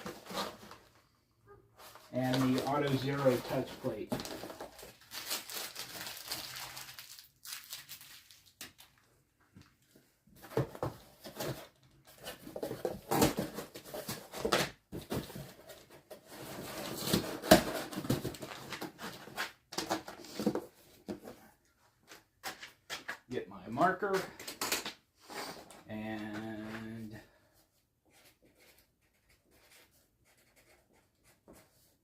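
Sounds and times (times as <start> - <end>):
packaging rustling and crinkling: 1.8 - 9.1.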